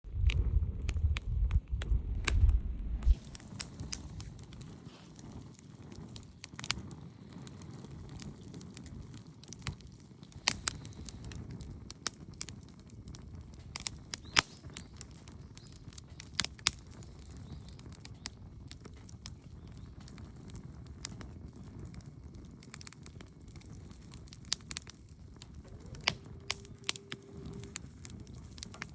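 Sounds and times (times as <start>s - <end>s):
wood fire crackling: 0.0s - 28.9s.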